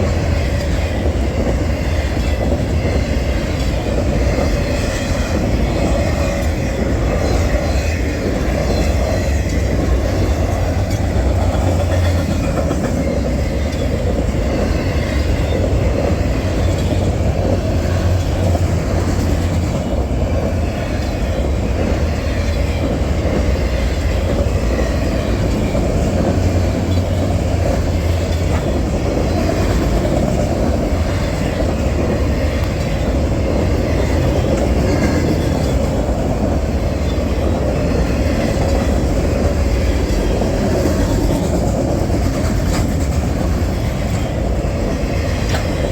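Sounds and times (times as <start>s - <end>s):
train wheels rumbling on rails: 0.0s - 45.9s.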